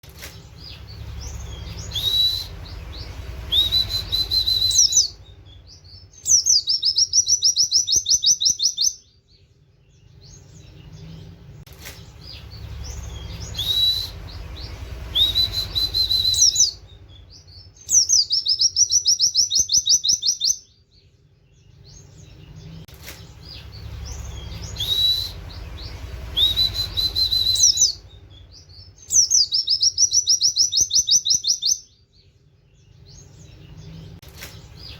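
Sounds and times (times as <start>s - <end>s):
low steady rumble: 0.3s - 7.2s, 9.0s - 19.0s, 20.7s - 30.6s
bird whistling and trilling: 0.6s - 9.1s, 12.2s - 20.8s, 23.5s - 32.0s.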